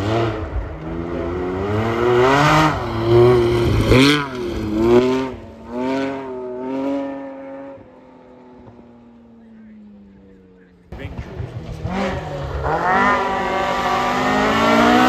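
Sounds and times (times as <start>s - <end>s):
rally car engine revving: 0.0s - 8.0s, 11.0s - 15.0s.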